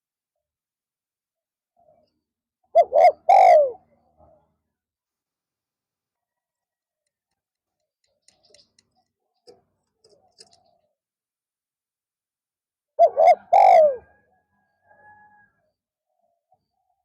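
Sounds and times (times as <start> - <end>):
dove cooing: 2.7 - 4.4, 13.0 - 14.3.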